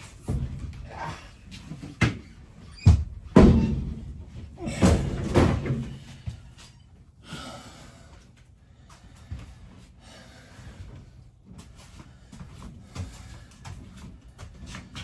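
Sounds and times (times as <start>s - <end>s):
wooden panels banging and thudding: 0.0s - 6.4s.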